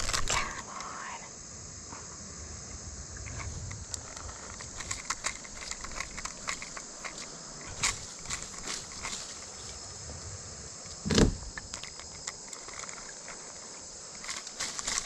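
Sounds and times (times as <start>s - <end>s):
small ticks and clicks: 0.0s - 1.0s, 2.7s - 9.8s, 10.8s - 15.0s
insects chirping: 0.0s - 15.0s.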